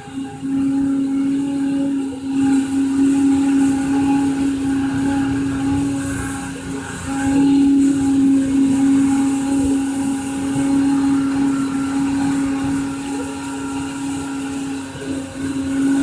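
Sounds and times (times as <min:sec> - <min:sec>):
electric motor humming: 0:00.0 - 0:16.0.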